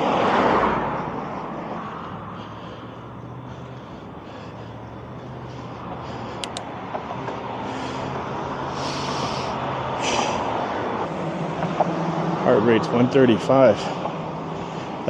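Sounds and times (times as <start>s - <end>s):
road traffic engine hum: 0.0s - 15.0s
short hisses: 8.7s - 10.5s.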